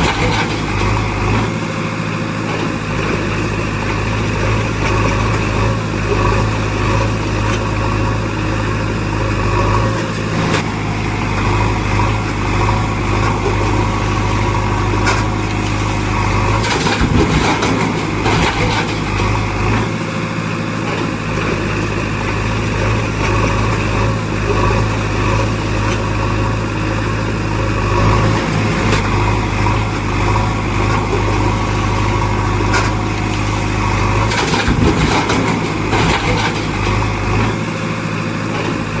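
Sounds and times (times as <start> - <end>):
heavy diesel engine running: 0.0 - 39.0
clattering: 16.6 - 19.9, 34.3 - 37.6.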